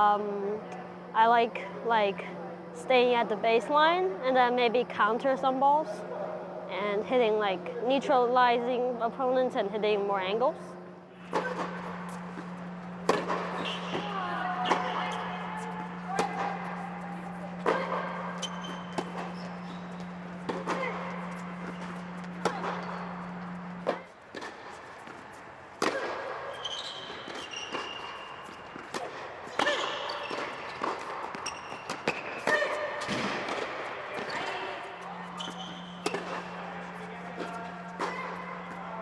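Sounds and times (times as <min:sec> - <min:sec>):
low hum: 0:00.0 - 0:24.1
shoe squeaks: 0:11.2 - 0:25.5, 0:26.4 - 0:38.9
racket hitting tennis ball: 0:11.2 - 0:26.5, 0:27.1 - 0:38.8.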